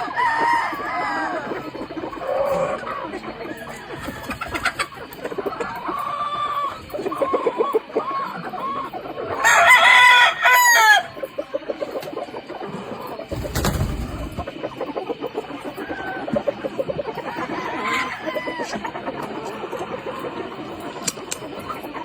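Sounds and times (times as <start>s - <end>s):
rooster crowing: 0.0s - 1.6s, 9.4s - 11.2s, 17.2s - 18.9s
chickens clucking: 0.0s - 22.0s.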